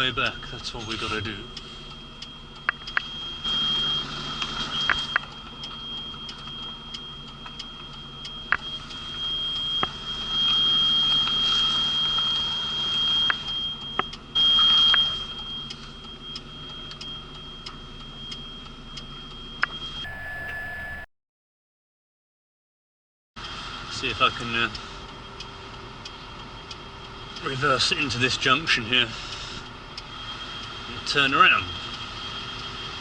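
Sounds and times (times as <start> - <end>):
high-pitched reversing warning tone: 0.2 - 21.1
lorry engine running: 20.0 - 21.1.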